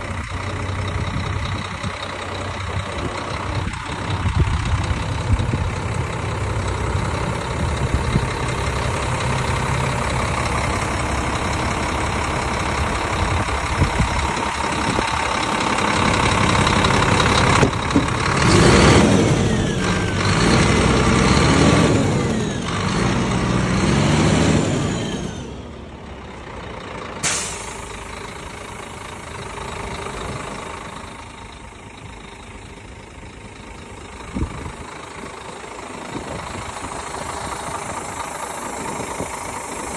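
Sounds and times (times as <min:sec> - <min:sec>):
truck diesel engine running: 0:00.0 - 0:39.9
short sharp hiss: 0:27.2 - 0:28.0.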